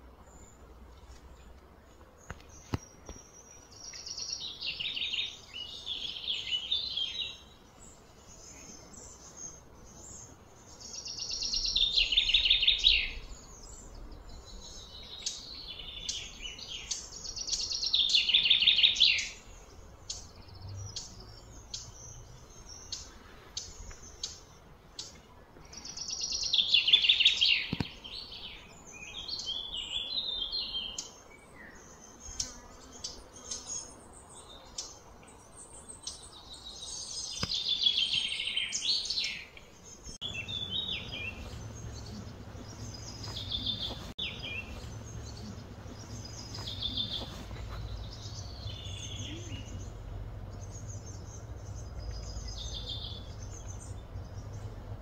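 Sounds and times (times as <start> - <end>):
songbird trilling: 10.2 - 25.2, 25.8 - 34.0, 35.8 - 54.9.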